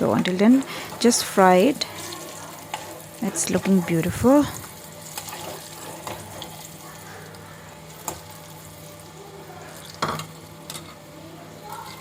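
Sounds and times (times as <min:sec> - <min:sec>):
garlic sizzling in oil: 0:00.0 - 0:12.0
spoon clicking and scraping pan: 0:02.0 - 0:03.0.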